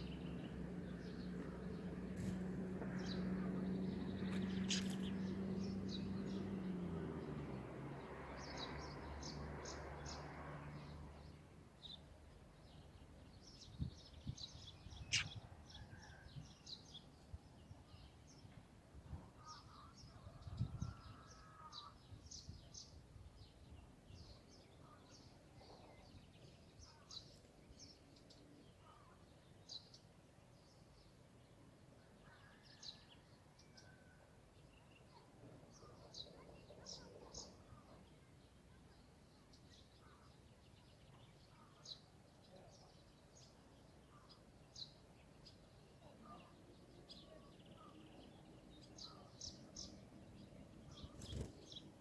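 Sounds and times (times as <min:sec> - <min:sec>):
small birds chirping: 0:00.0 - 0:33.0, 0:33.6 - 0:52.0.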